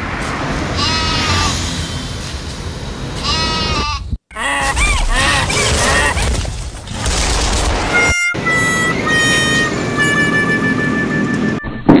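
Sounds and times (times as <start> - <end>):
street traffic: 0.0 - 4.2, 7.8 - 12.0
animal bleating: 0.8 - 1.5, 3.2 - 6.1.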